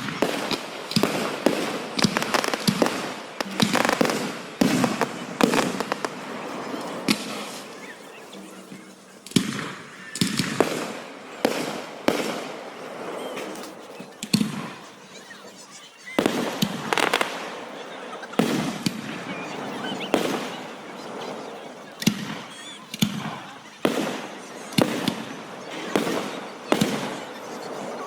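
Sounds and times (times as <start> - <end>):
fireworks booming and crackling: 0.0 - 28.0.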